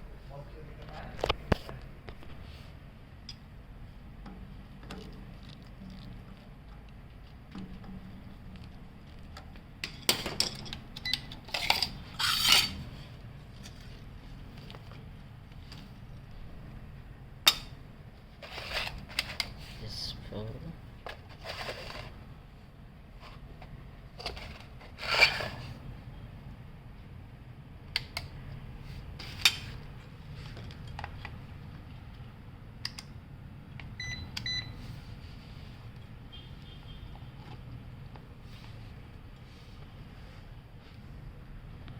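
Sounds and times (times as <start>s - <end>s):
low steady hum: 0.0s - 41.9s
metal parts clinking and scraping: 9.8s - 13.0s, 24.2s - 25.7s.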